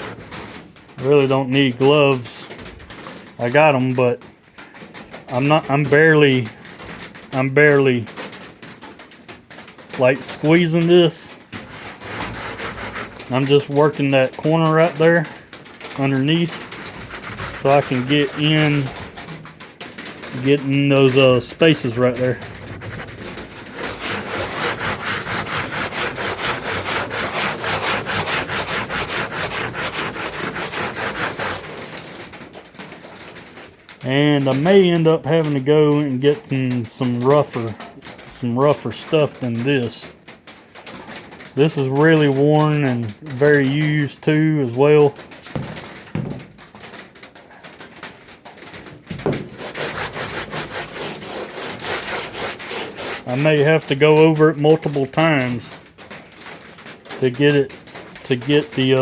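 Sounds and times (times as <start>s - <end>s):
sandpaper scraping strokes: 0.0s - 0.6s, 11.6s - 15.3s, 15.9s - 19.3s, 20.4s - 32.2s, 49.2s - 54.0s.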